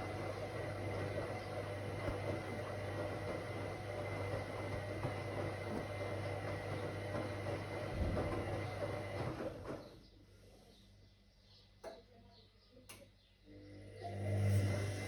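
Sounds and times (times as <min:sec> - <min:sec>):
washing machine running: 0:00.0 - 0:10.5, 0:13.6 - 0:15.0.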